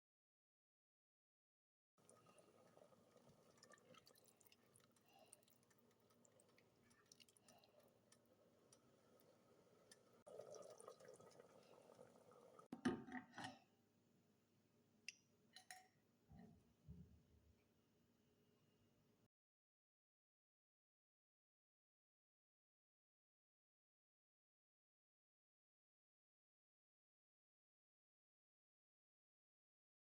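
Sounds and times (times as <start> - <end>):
food bubbling in a pan: 2.0 - 12.8.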